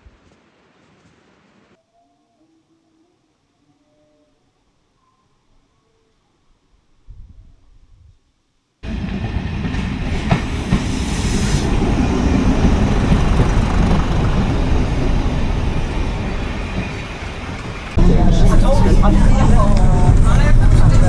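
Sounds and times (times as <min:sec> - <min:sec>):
diesel train rumbling: 0:08.8 - 0:21.0.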